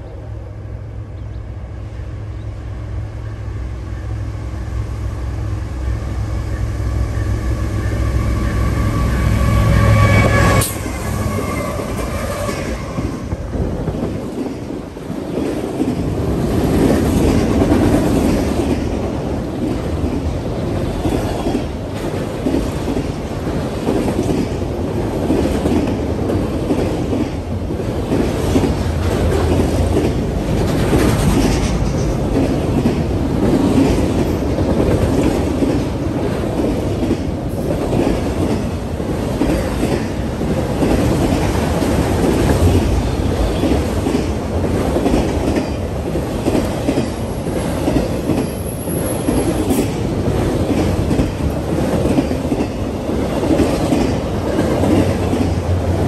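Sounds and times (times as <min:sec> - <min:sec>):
steel wheels rumbling on rail: 0:00.0 - 0:56.0
clickety-clack of wheels: 0:13.8 - 0:56.0.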